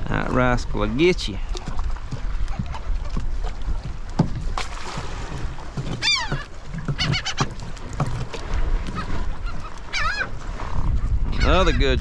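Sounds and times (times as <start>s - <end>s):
wind and water rumble: 0.0s - 12.0s
birds calling: 5.3s - 10.4s.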